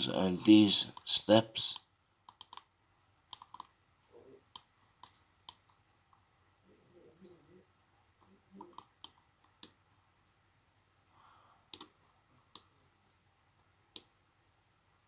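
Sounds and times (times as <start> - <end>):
computer control clicks: 2.3 - 2.7.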